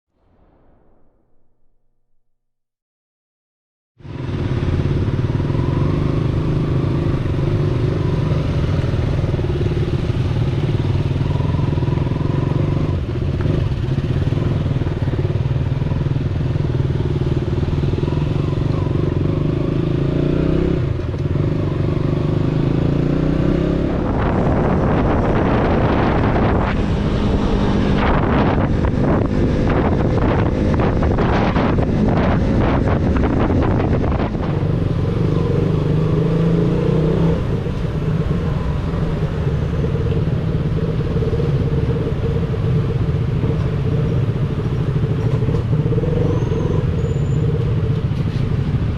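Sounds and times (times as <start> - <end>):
wind buffeting microphone: 23.0 - 48.9.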